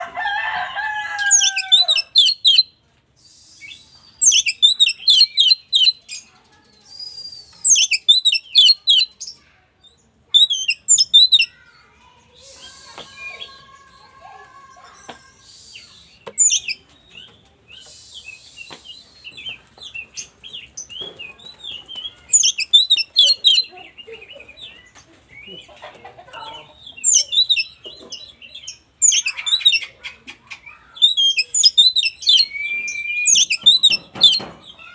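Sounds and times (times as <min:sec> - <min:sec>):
songbird chattering song: 0:01.2 - 0:34.9.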